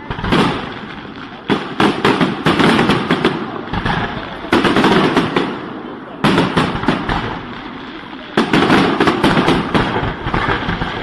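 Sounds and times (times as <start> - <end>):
firecrackers crackling: 0.0 - 11.0
fireworks banging: 0.0 - 11.0.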